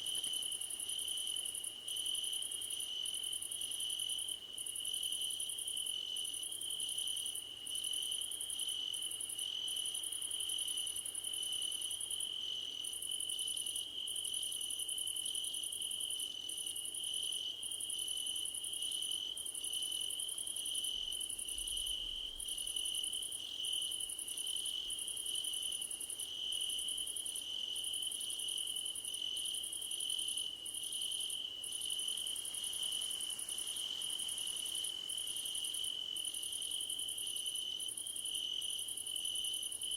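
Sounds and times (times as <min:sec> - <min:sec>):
higher cricket song in bursts: 0:00.0 - 0:39.9
crickets trilling: 0:20.6 - 0:39.9.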